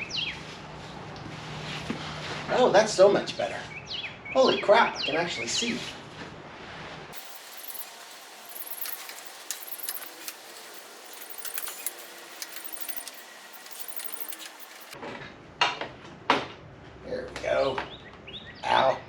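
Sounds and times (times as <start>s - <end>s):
hand tools clicking on metal: 7.2s - 15.0s
light rustling: 7.2s - 15.0s.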